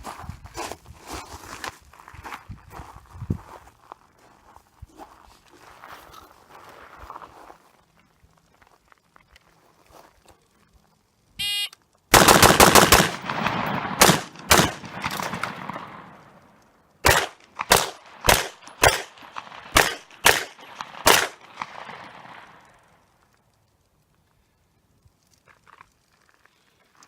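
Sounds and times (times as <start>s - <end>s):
shot-timer beep: 11.4s - 11.8s
rifle shots: 12.1s - 23.0s
handgun shots: 12.2s - 16.1s, 17.0s - 22.4s.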